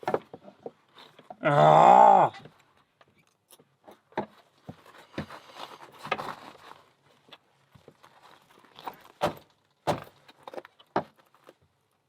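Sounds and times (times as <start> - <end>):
rustling: 2.5 - 12.0.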